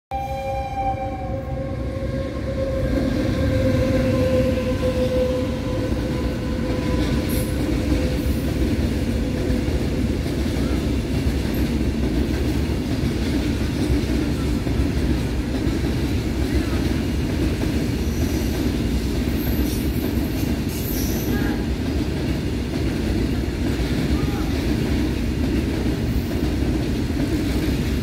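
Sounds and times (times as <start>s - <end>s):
locomotive horn: 0.1s - 7.1s
freight train rumble and clatter: 1.0s - 28.0s.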